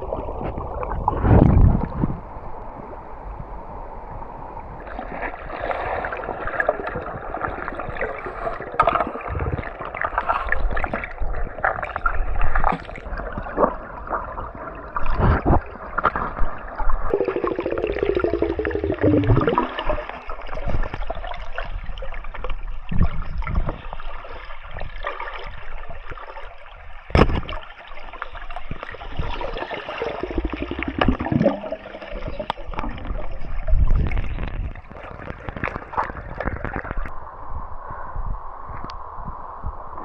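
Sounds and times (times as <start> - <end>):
water gurgling and splashing: 0.0 - 2.4, 4.8 - 37.1.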